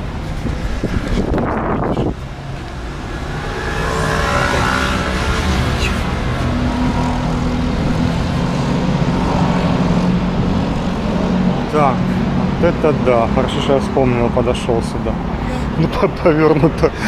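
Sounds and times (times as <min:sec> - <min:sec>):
road noise: 0:00.0 - 0:17.0
vehicle engine humming: 0:00.0 - 0:17.0.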